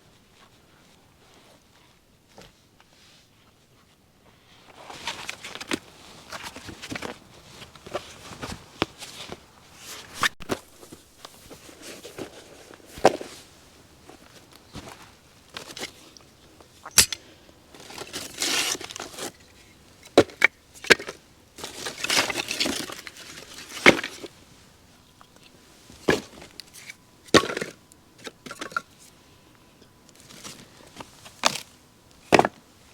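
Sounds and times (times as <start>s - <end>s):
dry sticks snapping: 16.8s - 17.3s.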